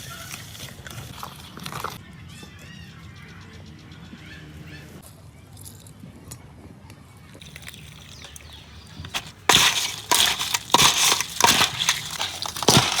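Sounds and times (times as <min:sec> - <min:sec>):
crab shell cracking and crunching: 0:07.4 - 0:13.0.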